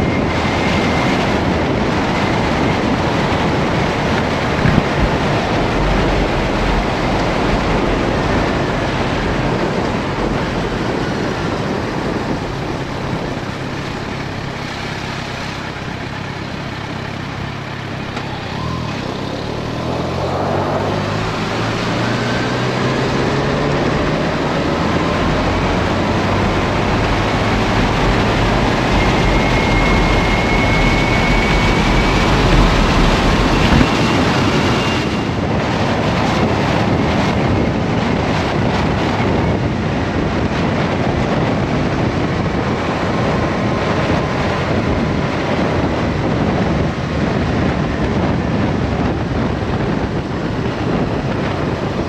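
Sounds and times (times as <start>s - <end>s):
deep low rumble: 0.0s - 36.1s
motorcycle engine and road noise: 0.0s - 52.0s
wind rushing over microphone: 0.0s - 52.0s.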